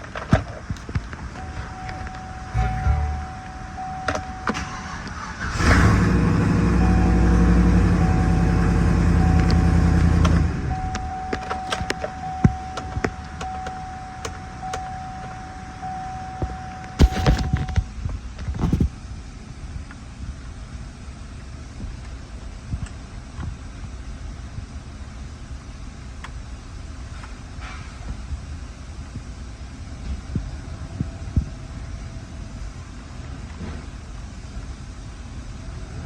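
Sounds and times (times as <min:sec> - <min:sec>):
truck engine starting and running: 0:00.0 - 0:17.8
clicks and thumps: 0:00.8 - 0:04.6, 0:17.0 - 0:17.8
dashboard warning chime beeping: 0:01.3 - 0:05.0, 0:06.8 - 0:10.1, 0:10.7 - 0:17.8.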